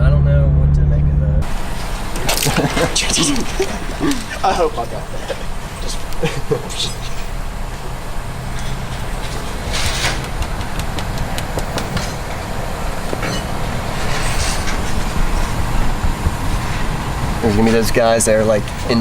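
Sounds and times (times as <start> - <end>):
car engine low rumble: 0.0 - 19.0.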